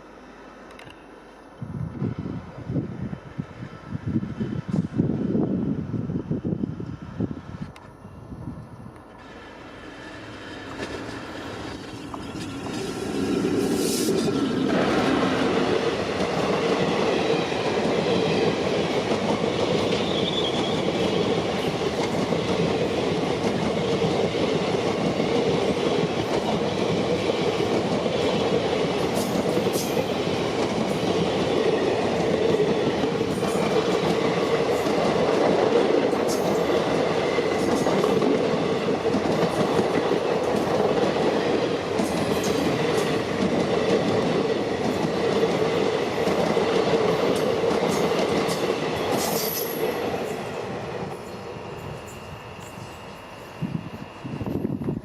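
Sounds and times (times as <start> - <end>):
train wheels rumbling on rails: 1.8 - 7.8, 9.0 - 55.0.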